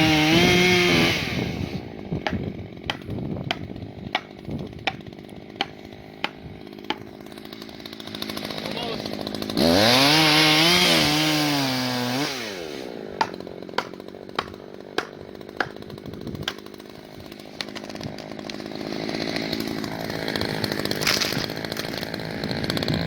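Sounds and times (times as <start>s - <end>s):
chainsaw revving and idling: 0.0s - 23.0s
sharp knocks: 13.2s - 15.8s.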